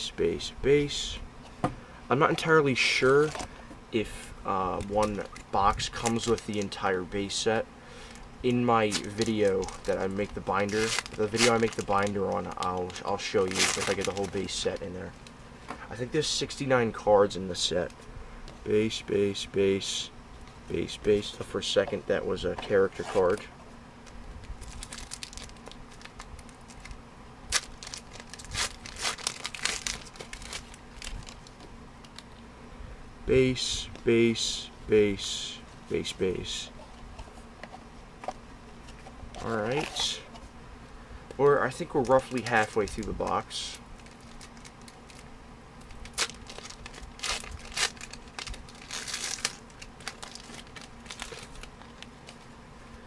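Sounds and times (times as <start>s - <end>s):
foil wrapper crinkling: 4.6s - 7.4s, 8.0s - 15.4s, 21.9s - 32.3s, 41.6s - 52.5s.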